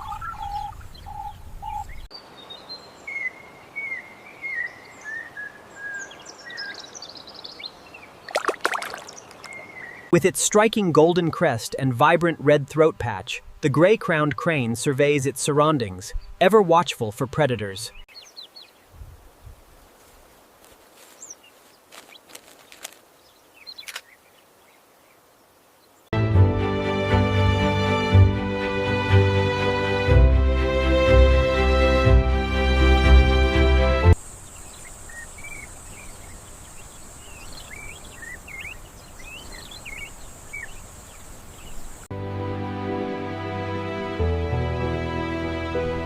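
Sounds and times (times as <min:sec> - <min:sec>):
birds singing: 0:00.0 - 0:10.2, 0:15.7 - 0:18.9, 0:21.0 - 0:26.1, 0:34.2 - 0:42.1
faint open-air ambience: 0:00.0 - 0:26.1, 0:34.2 - 0:45.9
background hiss: 0:00.8 - 0:26.1, 0:34.1 - 0:42.1
loud music: 0:26.2 - 0:34.2
high bird twittering: 0:34.5 - 0:41.9.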